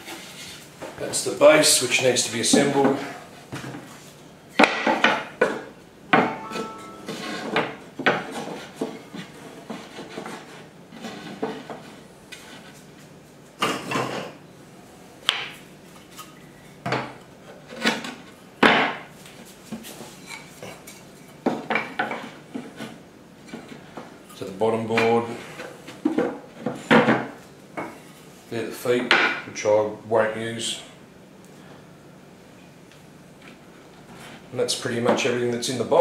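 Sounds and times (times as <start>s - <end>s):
wood scraping: 7.0s - 12.8s.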